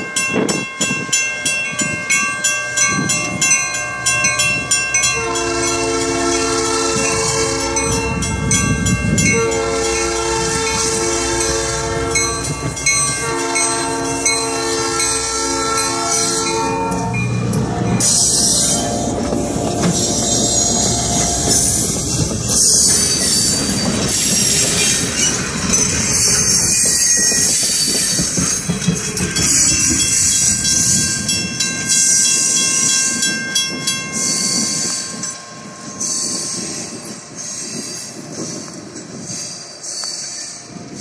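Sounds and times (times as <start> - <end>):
train wheels clattering: 2.8 - 41.0
thin high squeals: 18.0 - 21.9.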